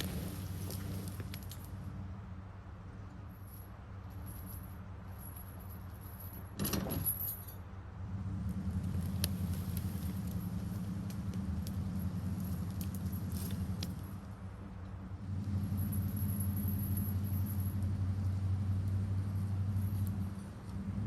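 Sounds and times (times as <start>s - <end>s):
vehicle engine running: 0.0s - 5.7s, 7.9s - 21.0s
light metallic rattling: 3.3s - 7.7s, 8.7s - 14.4s, 15.5s - 21.0s.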